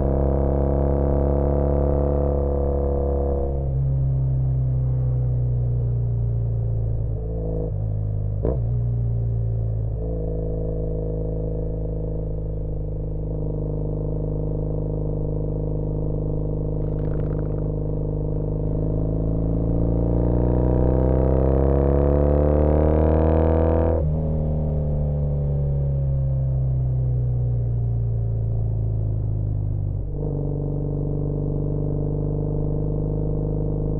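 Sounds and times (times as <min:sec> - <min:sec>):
motorcycle engine revving: 0:16.8 - 0:24.0.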